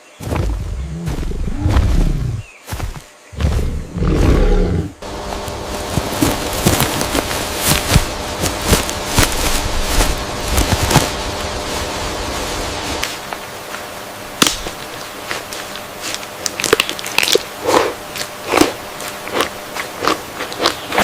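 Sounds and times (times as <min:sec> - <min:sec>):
animal deep roar: 0:00.7 - 0:02.5, 0:03.4 - 0:05.0.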